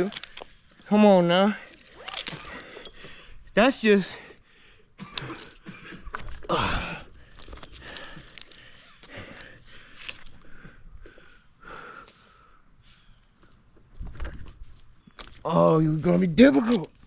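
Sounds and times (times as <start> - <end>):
metallic clicks of carabiners: 0.0 - 0.6, 1.6 - 3.1, 7.4 - 9.1, 16.4 - 17.0
gear rustling: 0.0 - 0.8, 1.6 - 3.0.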